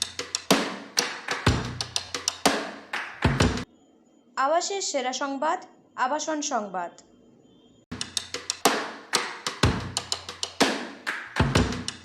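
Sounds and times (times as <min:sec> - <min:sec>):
drum-kit beat: 0:00.0 - 0:03.6, 0:07.9 - 0:12.0
bass-drum thumps: 0:01.5 - 0:02.4, 0:03.2 - 0:03.6, 0:09.5 - 0:10.7, 0:11.4 - 0:12.0.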